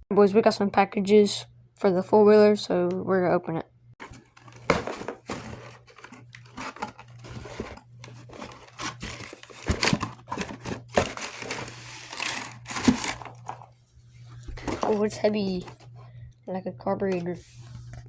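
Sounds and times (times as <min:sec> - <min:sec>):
steady low hum: 0:00.4 - 0:18.0
package wrapping tearing and crinkling: 0:04.0 - 0:13.6.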